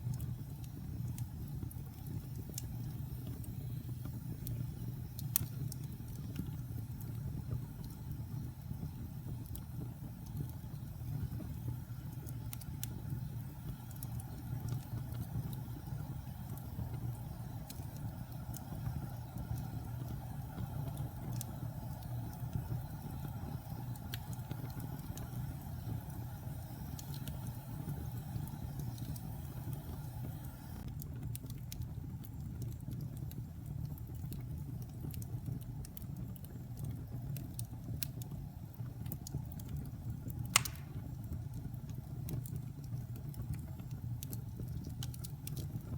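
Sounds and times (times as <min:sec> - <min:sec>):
fire crackles: 0:00.0 - 0:45.9
wood fire burning: 0:00.0 - 0:45.9
sharp pop: 0:40.6 - 0:41.0.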